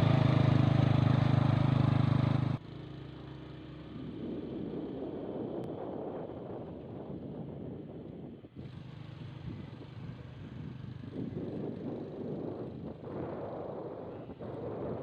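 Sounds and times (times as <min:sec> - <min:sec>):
vehicle engine rumbling: 0:00.0 - 0:05.9.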